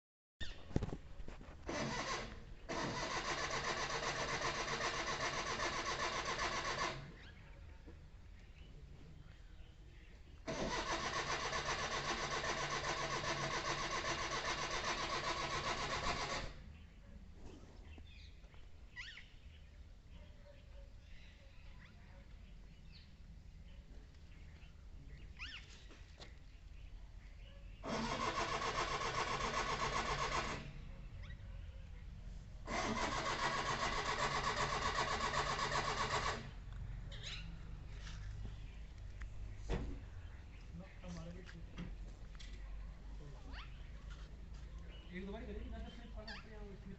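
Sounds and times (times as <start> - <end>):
starter motor cranking engine: 1.6 - 7.4, 10.4 - 16.7, 27.8 - 31.2, 32.6 - 36.7.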